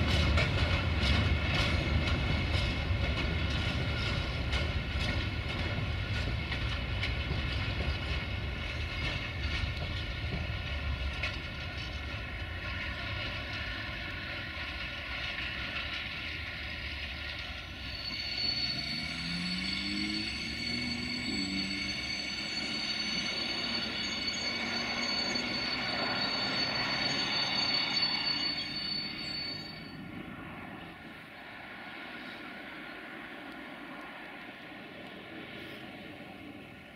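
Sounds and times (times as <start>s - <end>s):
train wheels rumbling on rails: 0.0s - 36.9s
high wheel squeal: 17.3s - 30.3s.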